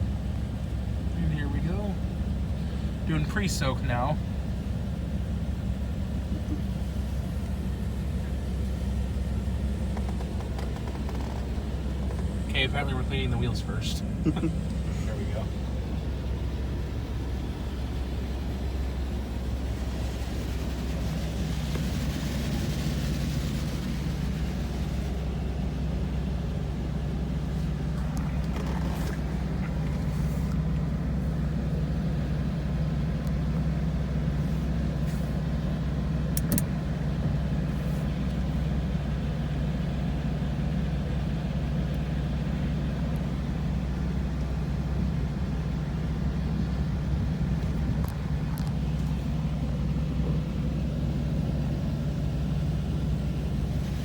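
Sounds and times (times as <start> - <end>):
car wash low hum: 0.0 - 54.0
sharp clicks: 36.3 - 36.7.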